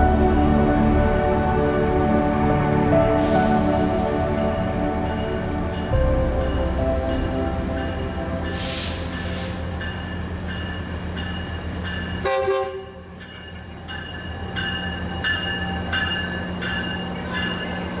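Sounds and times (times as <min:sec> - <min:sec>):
locomotive engine hum: 0:00.0 - 0:13.1
bell-like ringing: 0:04.5 - 0:12.3, 0:13.1 - 0:18.0.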